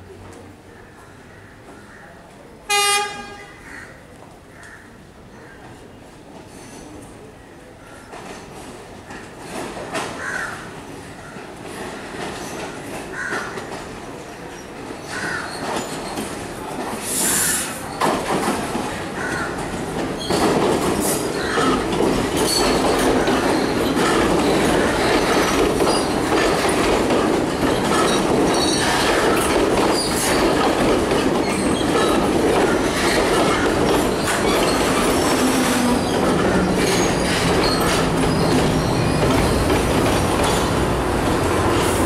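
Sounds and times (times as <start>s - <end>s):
train rolling rumble: 4.2s - 42.0s
wheels clicking over rail joints: 17.9s - 42.0s
wheels squealing on curve: 32.8s - 39.7s.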